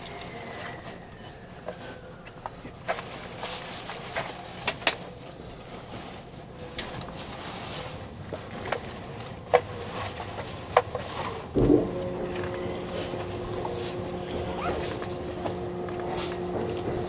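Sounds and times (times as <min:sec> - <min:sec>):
sharp clicks and knocks: 0:08.5 - 0:17.0
train cabin hiss: 0:11.0 - 0:17.0.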